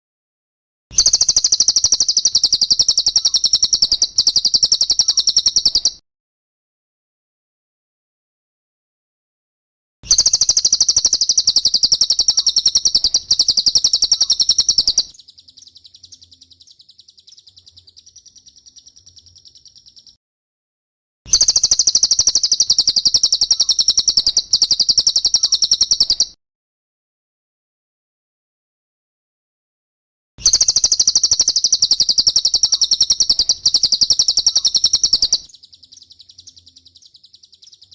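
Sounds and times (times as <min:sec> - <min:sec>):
bird chattering trill: 0:01.0 - 0:06.0, 0:10.1 - 0:20.2, 0:21.3 - 0:26.4, 0:30.4 - 0:37.9.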